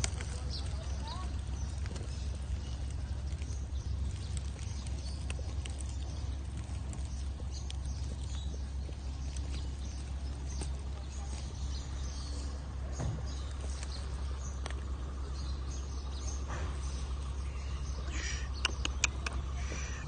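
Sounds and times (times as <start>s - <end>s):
bird chirping: 0.0s - 20.0s
steady low rumble: 0.0s - 20.0s
faint clicks: 18.5s - 19.9s.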